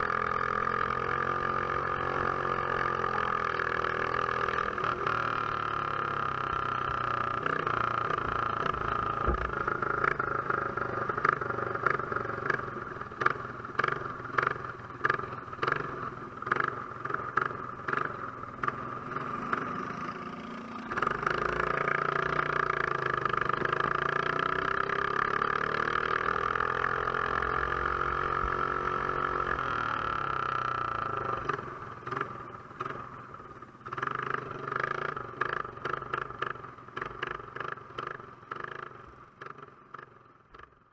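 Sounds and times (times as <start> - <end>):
small engine running at racing speed: 0.0 - 40.7.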